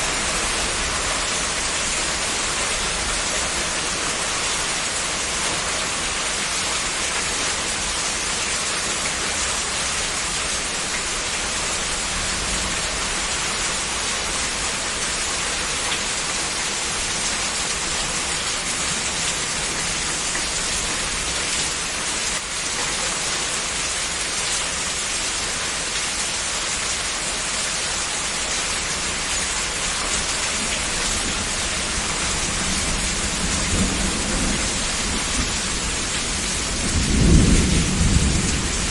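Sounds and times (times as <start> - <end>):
heavy rain hissing: 0.0 - 38.9.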